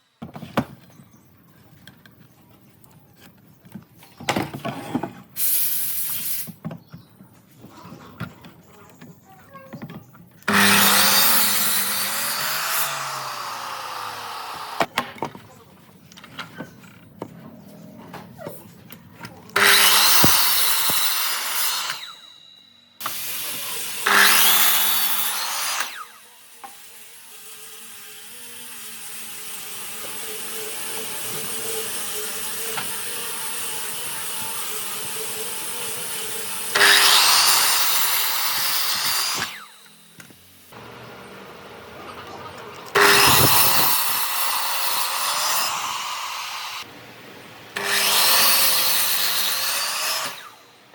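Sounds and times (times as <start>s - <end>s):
power tool working wood: 10.5s - 14.9s, 19.6s - 46.9s, 47.8s - 50.6s.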